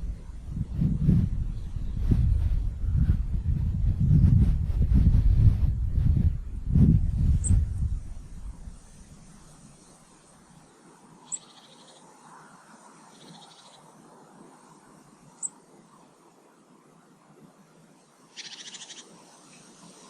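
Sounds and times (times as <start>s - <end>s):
small birds calling: 11.2s - 14.0s, 18.3s - 20.0s.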